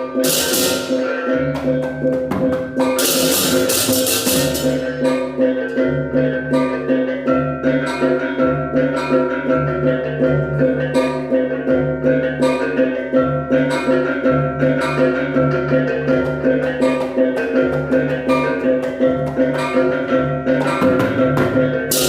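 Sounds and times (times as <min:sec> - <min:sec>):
cymbal clashes: 0:00.0 - 0:05.8, 0:19.6 - 0:22.0
gamelan gongs ringing: 0:00.0 - 0:22.0.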